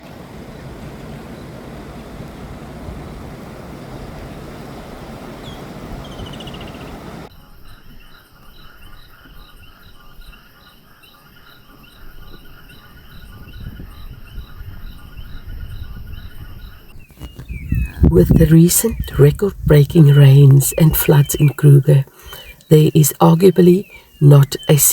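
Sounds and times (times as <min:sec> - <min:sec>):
frogs and insects chorus: 0:00.3 - 0:24.9
high pulsing call: 0:17.2 - 0:24.9.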